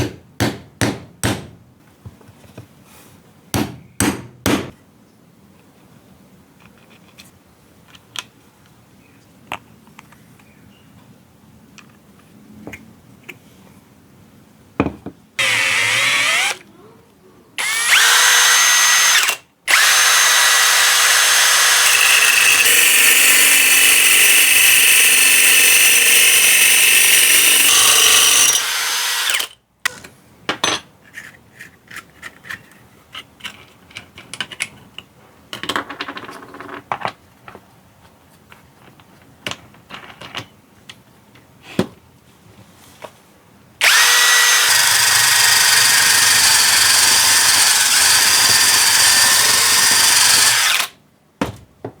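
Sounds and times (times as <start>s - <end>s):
electric drill motor running: 15.4s - 16.6s, 17.6s - 29.5s, 43.8s - 50.9s.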